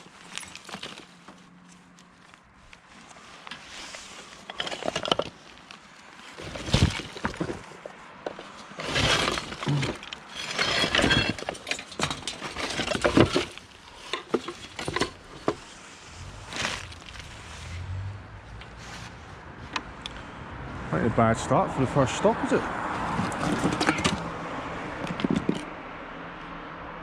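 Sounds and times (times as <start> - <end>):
junk clattering and scraping: 0.0 - 1.5, 3.1 - 17.9, 22.8 - 24.4, 25.0 - 25.7.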